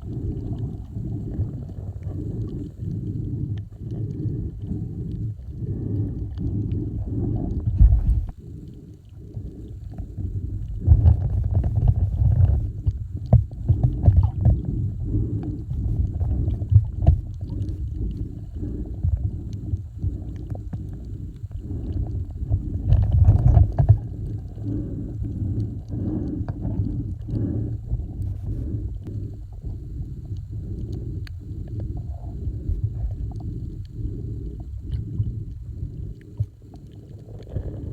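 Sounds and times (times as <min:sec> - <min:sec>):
muffled rumbling water: 0:00.0 - 0:37.9.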